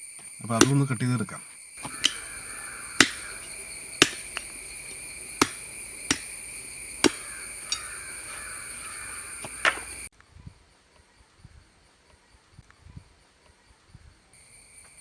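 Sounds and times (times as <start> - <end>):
cicadas droning: 0.0 - 15.0
blade chopping wooden sticks: 0.6 - 0.8, 1.8 - 10.1.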